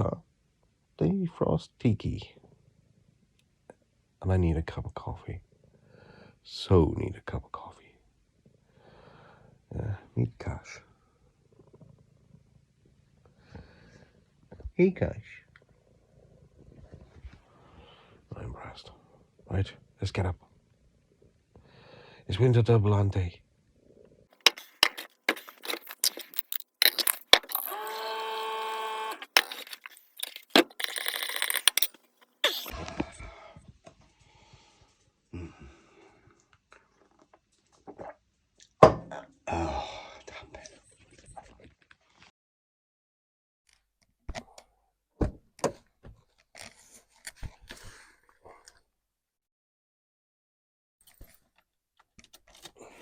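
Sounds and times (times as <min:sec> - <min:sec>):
clinks of small hard objects: 0:24.4 - 0:28.0, 0:28.6 - 0:32.7.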